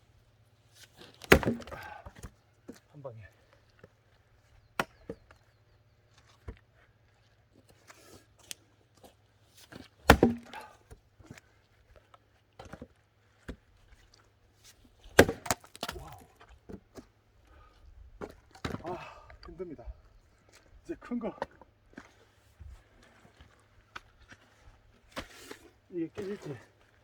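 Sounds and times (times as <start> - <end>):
axe chopping wood: 1.2 - 2.3, 4.8 - 5.2, 10.0 - 10.9, 15.0 - 16.4.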